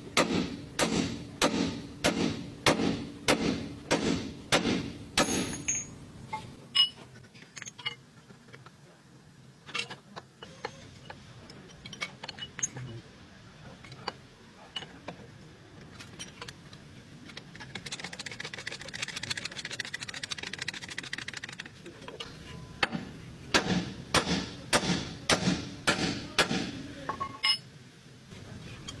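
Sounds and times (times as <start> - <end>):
rapid ratchet clicking: 17.3 - 21.8.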